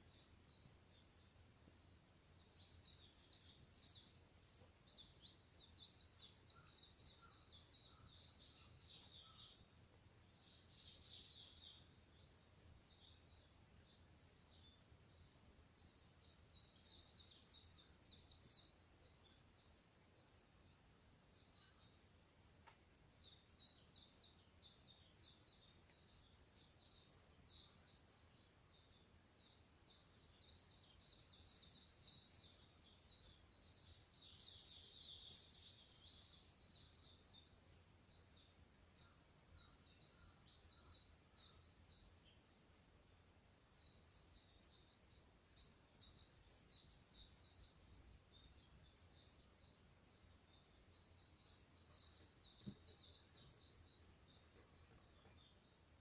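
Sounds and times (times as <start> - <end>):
small birds chirping: 0.0 - 56.0
faint click: 0.9 - 1.2, 22.0 - 23.6, 25.2 - 27.0, 37.6 - 37.9, 49.1 - 49.4.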